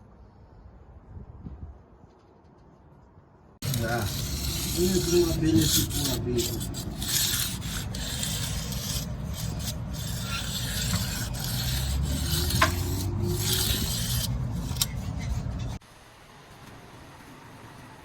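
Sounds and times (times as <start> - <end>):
hand tool scraping mortar: 3.6 - 15.8.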